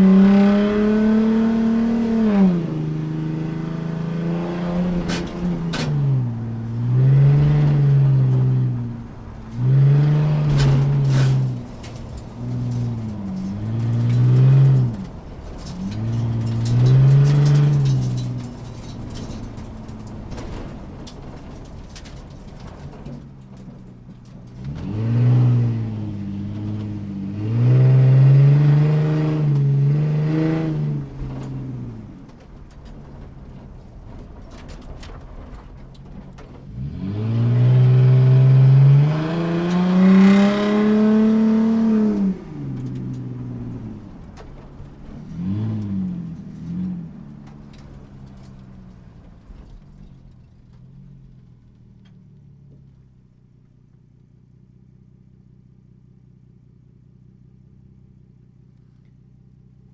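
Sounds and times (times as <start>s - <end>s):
muffled car engine revving: 0.0s - 59.9s.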